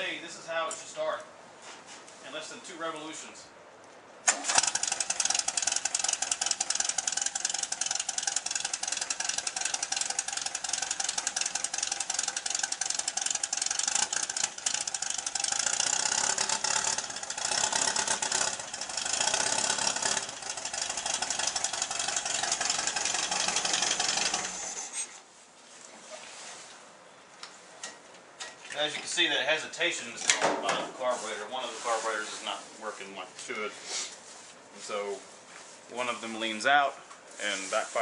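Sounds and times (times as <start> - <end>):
engine backfiring: 4.3 - 25.2
car engine running unevenly: 8.3 - 25.0.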